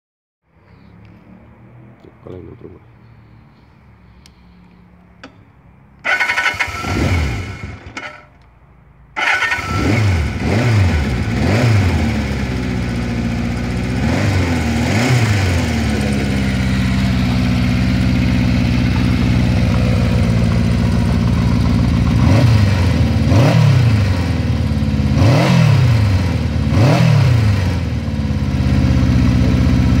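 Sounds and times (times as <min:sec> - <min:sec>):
motorcycle engine revving: 0:06.0 - 0:08.3, 0:09.2 - 0:30.0
motorcycle engine starting: 0:06.0 - 0:08.5, 0:09.2 - 0:30.0.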